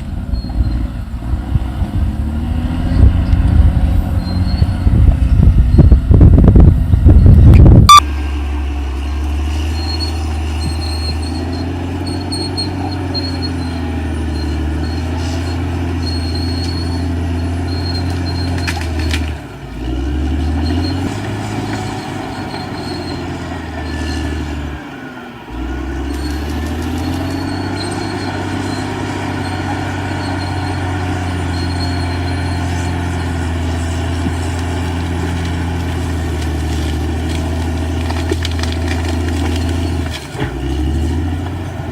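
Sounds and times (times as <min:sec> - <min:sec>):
dozer diesel engine under load: 0:00.0 - 0:41.9.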